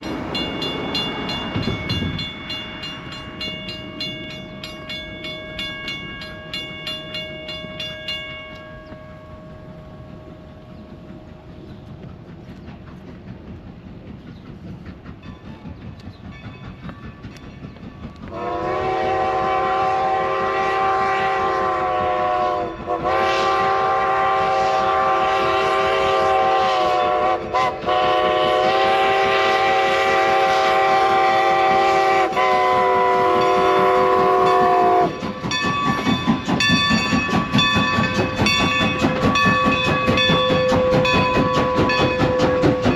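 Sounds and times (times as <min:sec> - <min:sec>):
train rumbling: 0:00.0 - 0:42.9
locomotive horn chord blasts: 0:18.3 - 0:35.1
wheels clattering over rail joints: 0:33.4 - 0:42.9.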